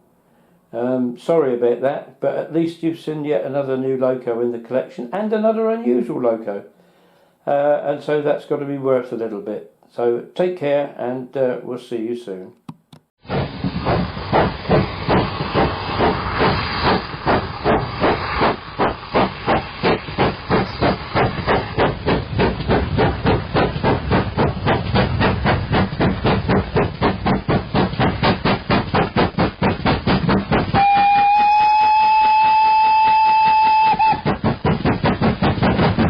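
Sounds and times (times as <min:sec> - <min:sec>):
steam locomotive chuffing: 0:13.2 - 0:36.0
steam whistle: 0:30.7 - 0:34.4.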